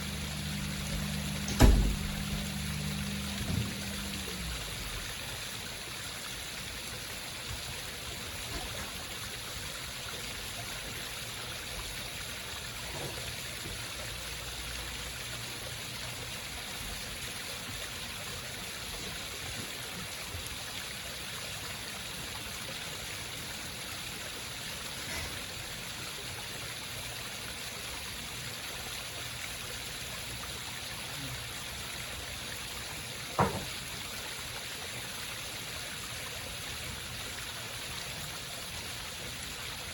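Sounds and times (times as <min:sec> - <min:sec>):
small waterfall trickling: 0:00.0 - 0:39.9.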